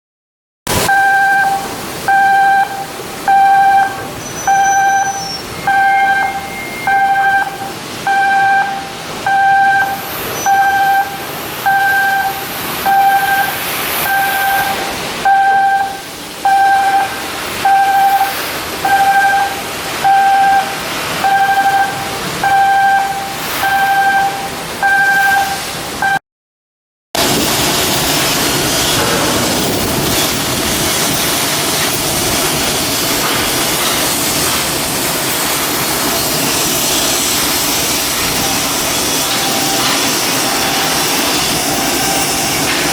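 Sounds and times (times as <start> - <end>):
electronic warning beeps: 0.7 - 26.2, 38.4 - 42.9
workshop background noise: 0.7 - 26.2, 27.2 - 42.9.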